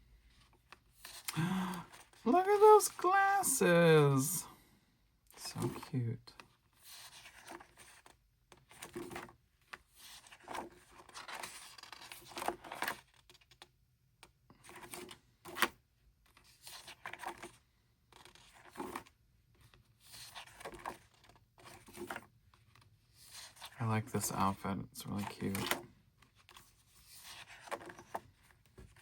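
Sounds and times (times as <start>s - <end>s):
book pages turning: 6.7s - 13.6s, 25.2s - 29.0s.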